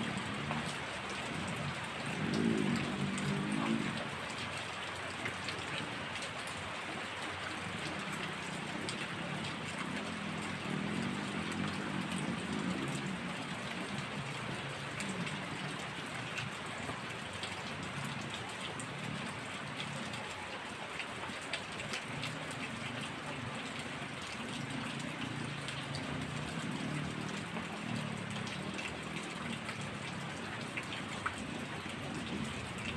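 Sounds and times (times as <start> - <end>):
heavy rain falling: 0.0 - 32.9
raindrops ticking on a surface: 0.0 - 32.9.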